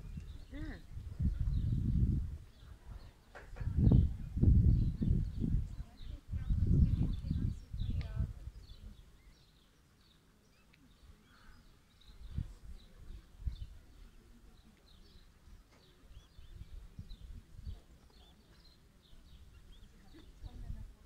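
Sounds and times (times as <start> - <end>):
microphone wind thumps: 0.0 - 9.0.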